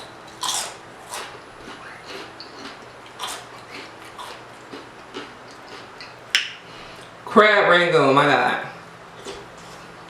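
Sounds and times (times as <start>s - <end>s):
person chewing food: 0.0s - 7.2s, 9.1s - 10.0s.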